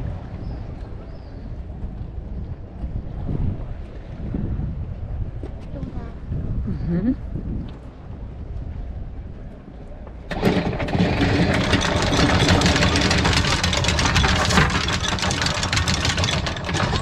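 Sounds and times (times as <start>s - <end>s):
small boat engine rattling: 10.0s - 17.0s.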